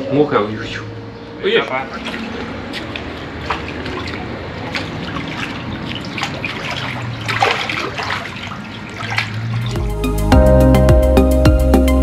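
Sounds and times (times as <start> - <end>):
water splashing and trickling: 0.4 - 10.2.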